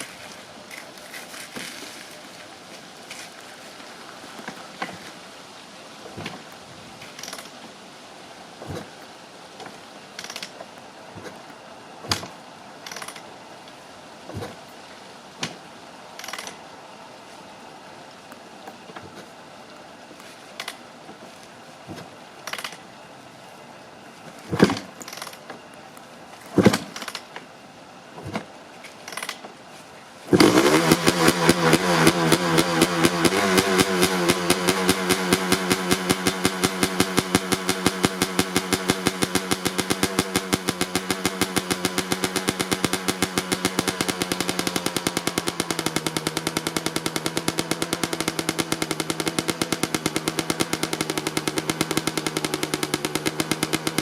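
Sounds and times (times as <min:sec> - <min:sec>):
two-stroke motorcycle engine running: 0:30.3 - 0:54.0.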